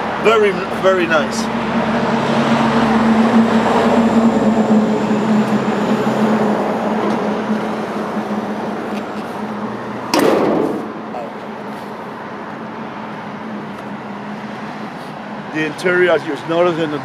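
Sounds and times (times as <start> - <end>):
car hood shutting thump: 10.1 - 11.0.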